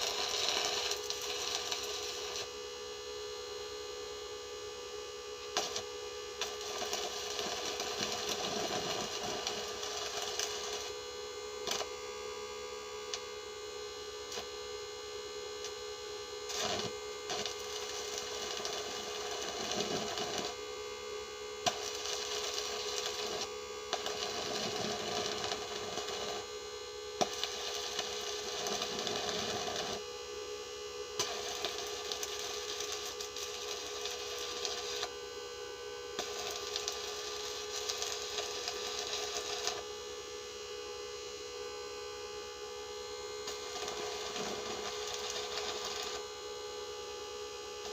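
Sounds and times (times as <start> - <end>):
welding arc crackling and hissing: 0.0 - 2.6, 5.4 - 12.0, 13.0 - 13.4, 14.0 - 14.7, 15.4 - 30.1, 31.0 - 35.4, 36.0 - 39.9, 43.4 - 47.9
steady hum: 0.0 - 47.9.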